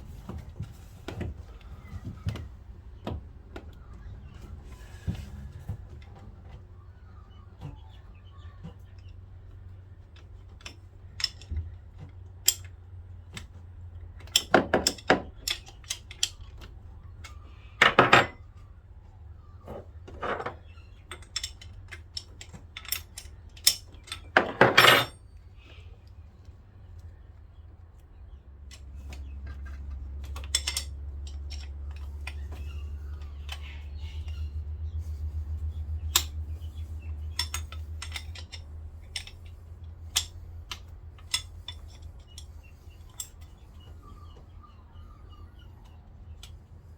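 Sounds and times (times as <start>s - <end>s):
metal tools clinking: 17.8s - 18.4s, 19.7s - 25.3s, 28.7s - 34.5s, 36.1s - 43.8s
low hum: 25.0s - 46.9s
metallic rattles: 28.7s - 44.1s.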